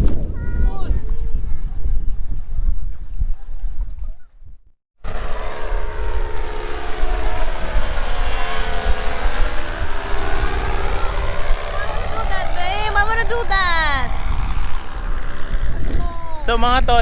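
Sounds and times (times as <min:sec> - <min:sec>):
wind on microphone: 0:00.0 - 0:17.0
propeller engine droning: 0:05.0 - 0:17.0.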